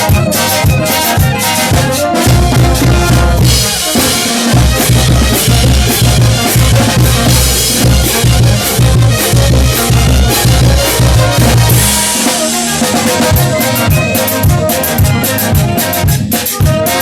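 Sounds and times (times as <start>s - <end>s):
drums beating steadily: 0.0s - 17.0s
sustained brass notes: 0.0s - 17.0s.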